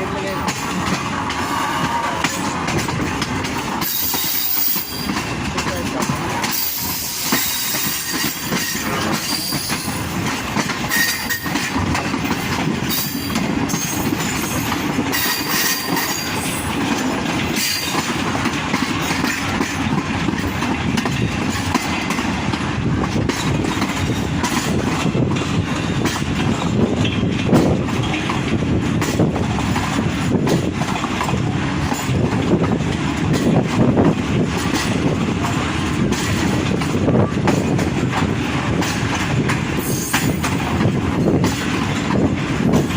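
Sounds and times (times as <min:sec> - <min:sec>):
train wheels clattering on rails: 0:00.0 - 0:42.9.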